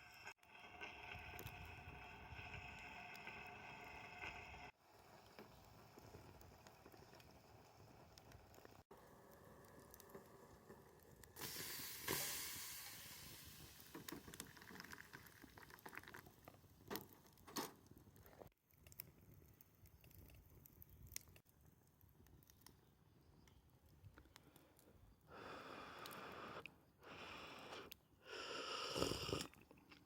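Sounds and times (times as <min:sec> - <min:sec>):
fire hissing: 0:00.0 - 0:15.0, 0:25.3 - 0:29.5
bonfire crackling and popping: 0:00.5 - 0:24.6.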